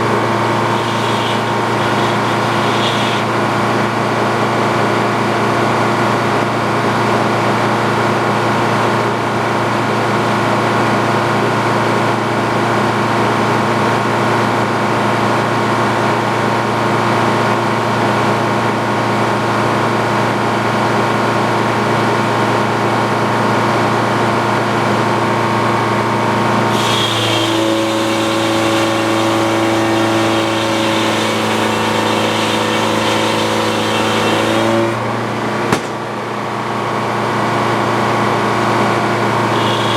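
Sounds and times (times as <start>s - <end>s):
saw cutting into log: 0.0s - 4.0s, 26.7s - 35.0s, 39.4s - 39.9s
sawmill machine hum: 0.0s - 21.4s, 22.0s - 39.9s.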